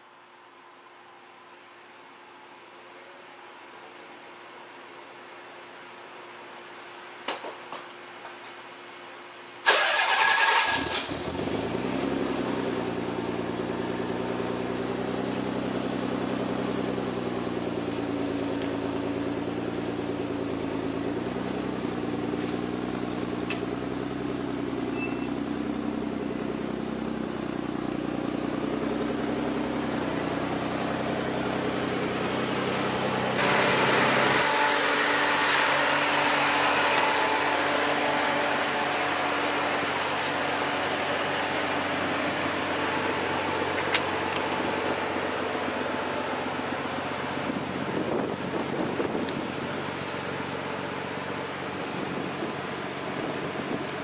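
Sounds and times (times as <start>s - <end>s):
engine cranking on starter: 9.6s - 11.7s
engine idling: 9.7s - 54.0s.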